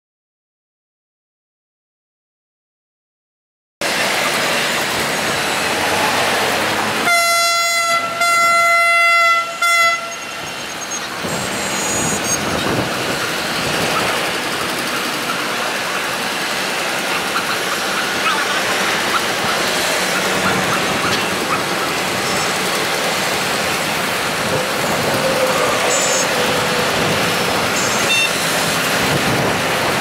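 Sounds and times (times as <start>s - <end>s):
train engine and wheels rumbling: 3.8s - 30.0s
locomotive horn: 7.0s - 12.9s, 20.2s - 28.8s.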